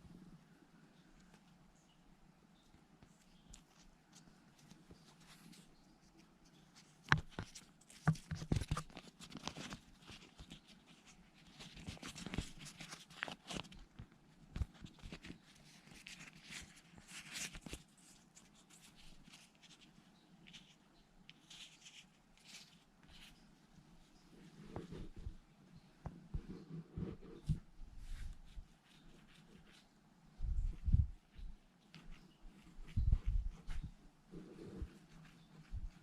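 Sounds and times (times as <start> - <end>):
plastic wrap rustling and peeling: 3.2 - 23.5.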